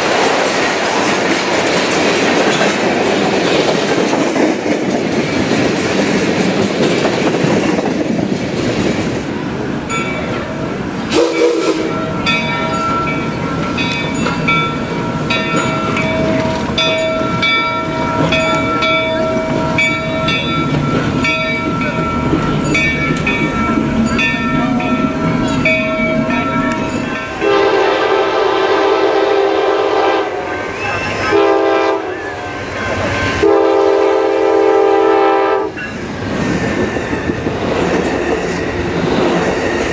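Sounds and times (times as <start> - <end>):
train rumbling and clacking: 0.0 - 39.9
crossing bell ringing: 9.8 - 27.8, 30.4 - 33.5, 35.7 - 39.9
train horn blasts: 11.1 - 12.1, 27.4 - 32.6, 33.4 - 35.8.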